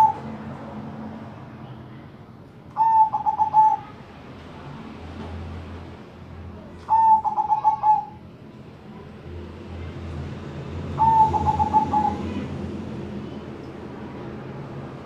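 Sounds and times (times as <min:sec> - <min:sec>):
dove cooing: 0:00.0 - 0:00.3, 0:02.8 - 0:04.0, 0:06.9 - 0:08.2, 0:11.0 - 0:12.5.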